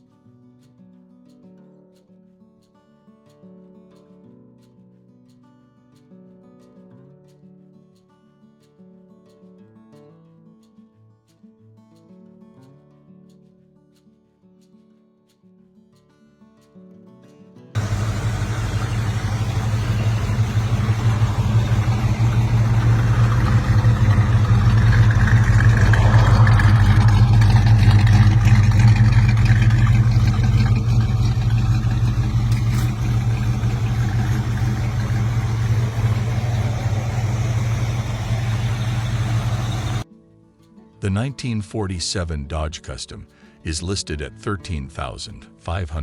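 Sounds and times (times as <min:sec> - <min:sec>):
car engine running: 0:17.8 - 0:40.0.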